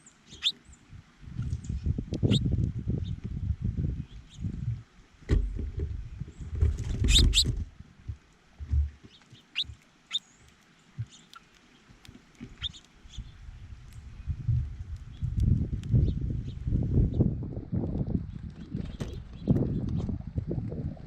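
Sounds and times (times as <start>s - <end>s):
small birds chirping: 0.0s - 0.8s, 6.2s - 7.6s, 9.0s - 17.3s
low bumps and rustling: 1.3s - 9.8s.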